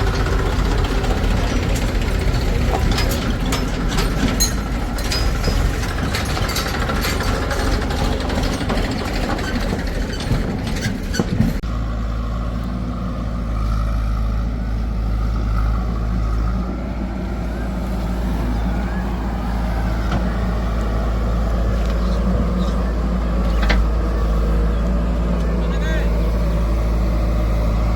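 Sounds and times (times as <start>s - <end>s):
clattering and sharp knocks: 0.0s - 11.6s
diesel machinery engine: 0.0s - 27.9s.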